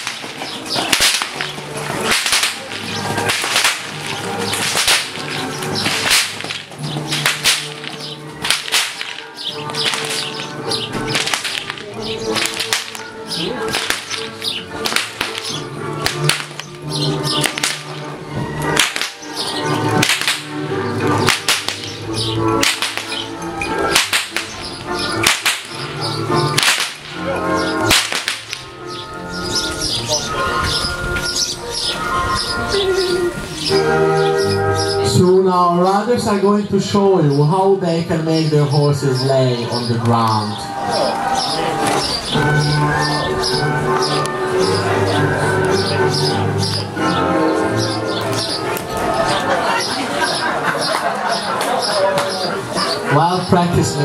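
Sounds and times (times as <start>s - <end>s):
whips cracking: 0.0s - 29.7s.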